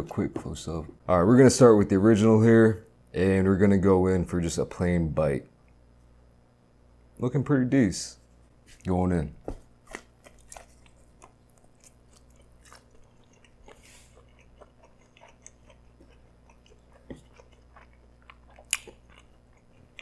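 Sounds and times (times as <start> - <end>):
wet mouth clicks chewing: 9.9 - 20.0.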